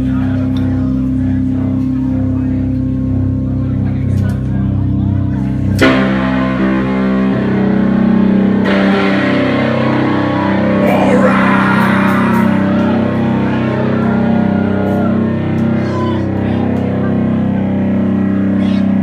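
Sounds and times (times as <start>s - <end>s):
heavy electric guitar chords: 5.9s - 14.8s.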